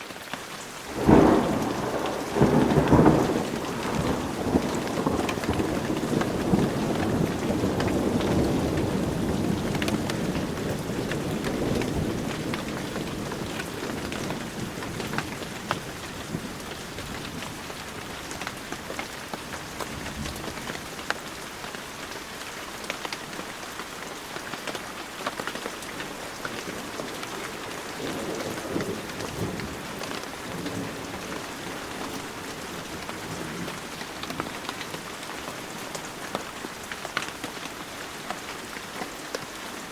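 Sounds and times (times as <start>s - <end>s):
heavy rain falling: 0.0s - 39.9s
thunder rumbling: 0.9s - 21.0s, 25.6s - 36.9s.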